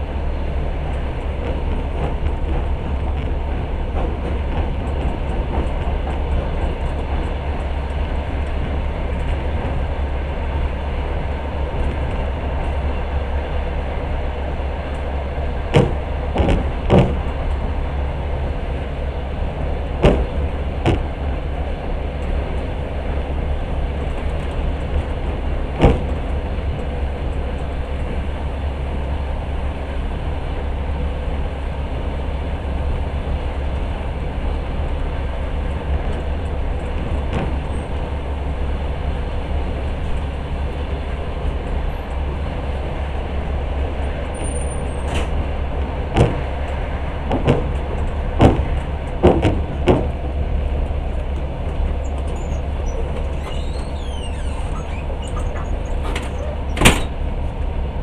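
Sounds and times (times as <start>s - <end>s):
train carriage rumbling on rails: 0.0s - 58.0s
sharp knocks: 15.7s - 17.6s, 20.0s - 21.5s, 25.7s - 26.3s, 46.1s - 46.6s, 47.3s - 50.2s.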